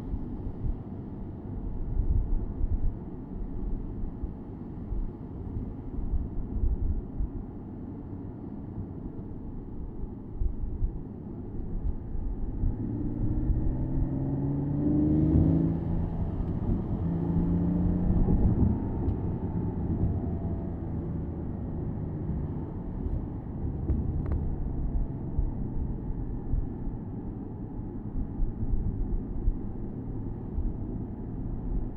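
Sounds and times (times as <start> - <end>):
road and wind noise: 0.0 - 31.9
car engine accelerating: 12.5 - 25.5.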